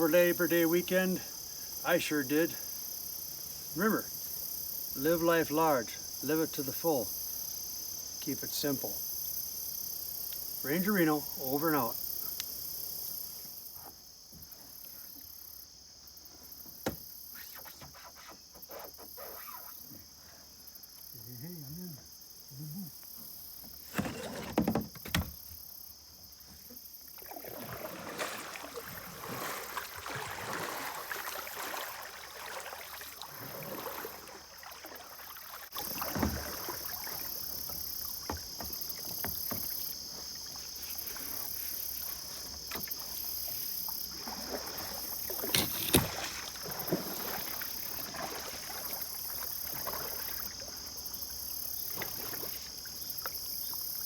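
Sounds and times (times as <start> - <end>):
high insect drone: 0.0 - 54.0
paddle splashing in water: 26.5 - 54.0.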